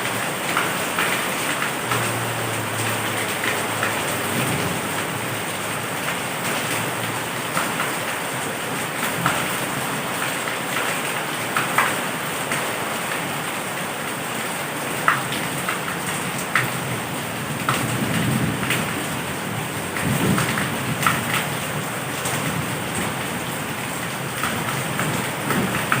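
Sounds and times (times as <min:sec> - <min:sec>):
heavy rain: 0:00.0 - 0:26.0
raindrops smacking a surface: 0:00.0 - 0:26.0
thunder rumbling: 0:01.8 - 0:07.2.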